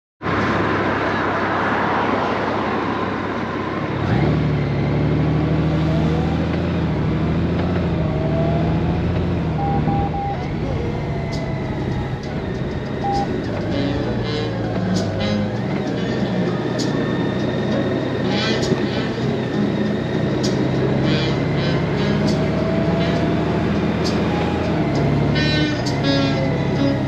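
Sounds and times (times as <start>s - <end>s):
wind and road rush: 0.2s - 27.0s
motorcycle engine low hum: 4.1s - 16.8s
short beeps: 9.6s - 10.7s, 13.0s - 13.3s.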